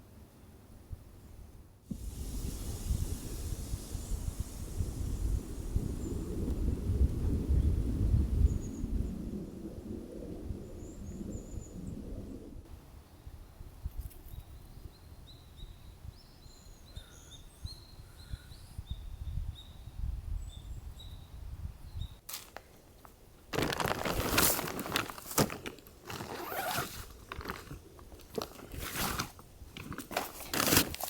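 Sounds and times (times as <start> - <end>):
snow crunching: 23.5 - 31.0.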